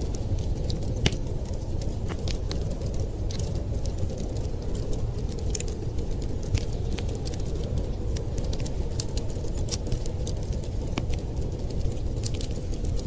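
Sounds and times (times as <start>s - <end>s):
fire pops and snaps: 0.0s - 13.0s
wood fire crackling: 0.0s - 13.0s.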